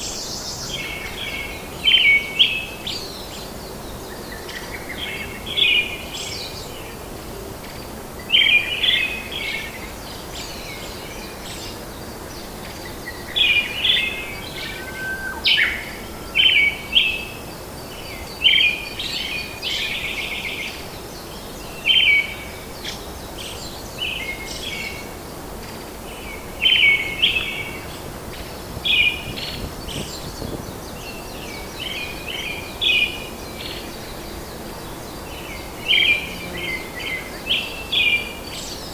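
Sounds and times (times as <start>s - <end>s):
forest ambience hiss: 0.0s - 38.9s
birds chirping: 8.2s - 38.9s.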